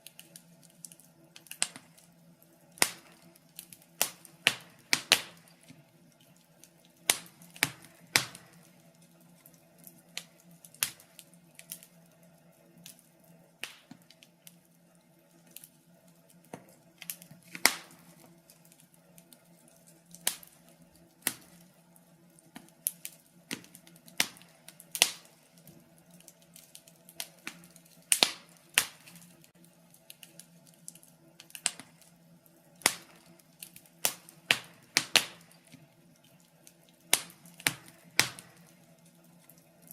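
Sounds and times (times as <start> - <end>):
burning logs crackling: 0.0 - 39.9.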